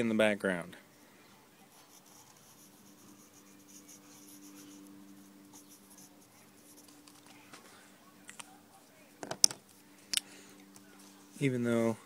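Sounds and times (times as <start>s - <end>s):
low steady hum: 0.0s - 12.0s
pencil scratching on paper: 1.7s - 7.0s.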